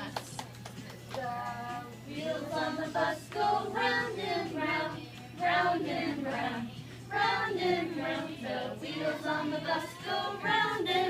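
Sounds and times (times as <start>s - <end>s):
group singing with children: 2.1s - 11.0s.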